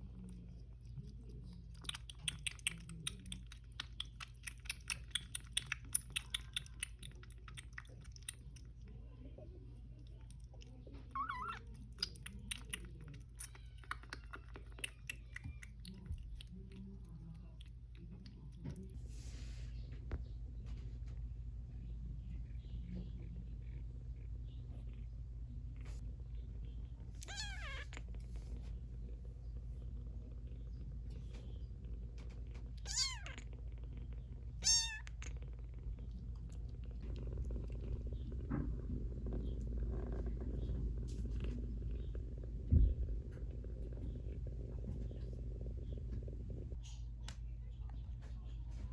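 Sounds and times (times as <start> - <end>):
kitten wet mouth clicking: 0.0 - 9.0, 9.8 - 18.9, 34.6 - 37.9
kitten meowing: 11.1 - 11.7, 27.2 - 28.0, 32.8 - 33.4, 34.6 - 35.2
kitten mewing: 11.1 - 16.1, 27.2 - 28.0, 32.8 - 33.5, 34.6 - 35.4.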